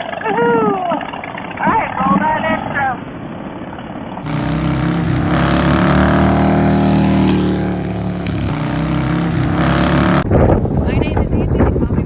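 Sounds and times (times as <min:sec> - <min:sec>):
motorcycle engine running: 0:04.2 - 0:10.3.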